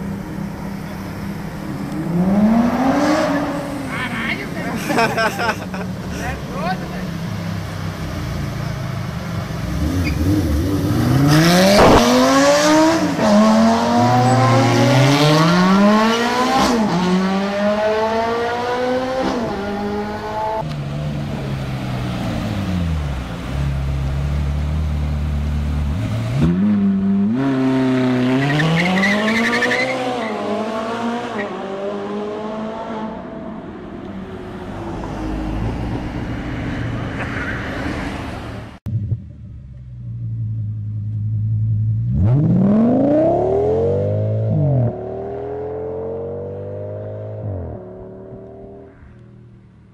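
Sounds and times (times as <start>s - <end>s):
sports car engine accelerating: 0.0s - 4.0s, 7.1s - 33.4s.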